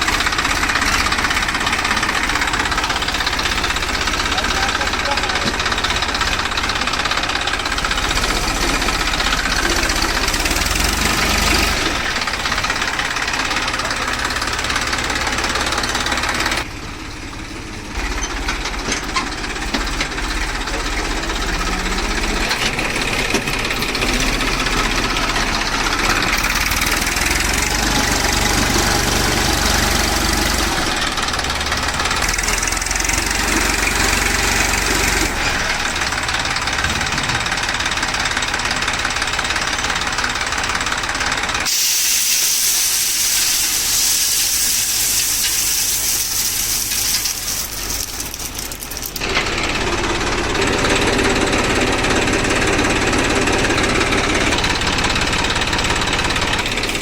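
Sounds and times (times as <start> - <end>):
tractor diesel engine clattering: 0.0 - 57.0.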